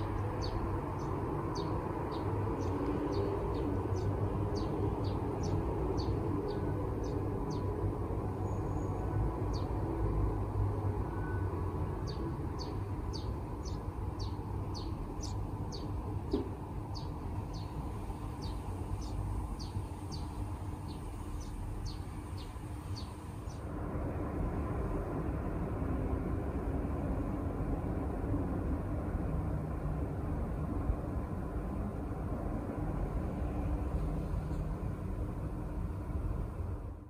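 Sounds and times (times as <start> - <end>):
bird chirping: 0.0 - 7.7, 12.0 - 23.6
distant traffic rumble: 0.0 - 37.0.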